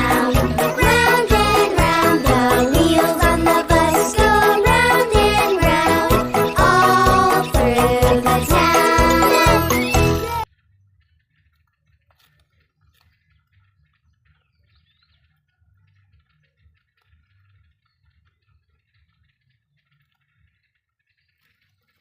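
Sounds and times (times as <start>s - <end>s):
loud cheerful music: 0.0s - 10.5s.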